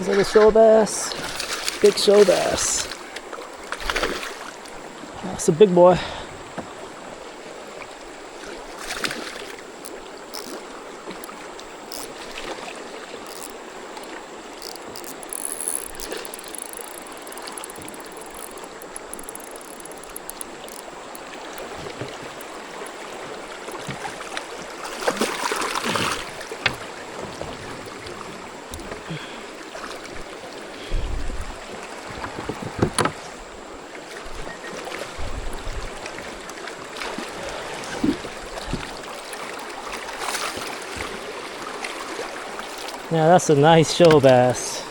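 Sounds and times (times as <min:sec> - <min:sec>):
water splashing rush: 0:00.0 - 0:33.5
creek water running: 0:00.0 - 0:44.9
clicks: 0:14.6 - 0:23.0.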